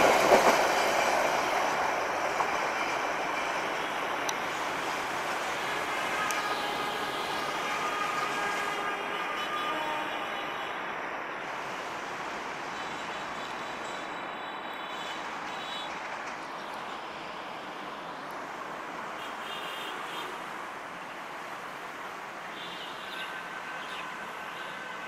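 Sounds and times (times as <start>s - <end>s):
train wheels rumbling on rails: 0.0s - 8.9s, 11.5s - 18.5s.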